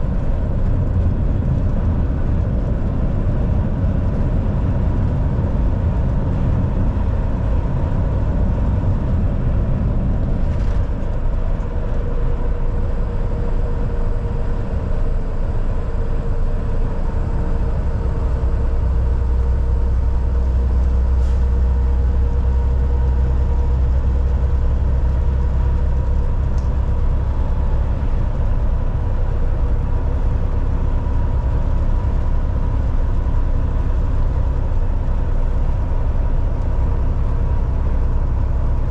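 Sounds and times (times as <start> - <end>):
deep low rumble: 0.0 - 38.9
road noise: 0.0 - 38.9
truck engine drone: 0.0 - 38.9.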